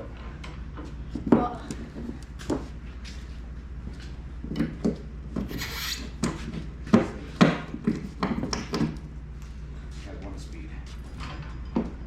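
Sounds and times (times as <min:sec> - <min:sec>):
steady low hum: 0:00.0 - 0:12.0
short scrape: 0:05.4 - 0:06.1.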